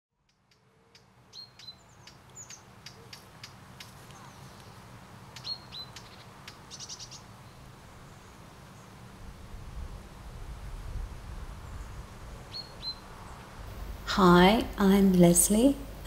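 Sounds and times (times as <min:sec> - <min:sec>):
wild birds singing: 0:00.2 - 0:09.2, 0:11.6 - 0:14.0.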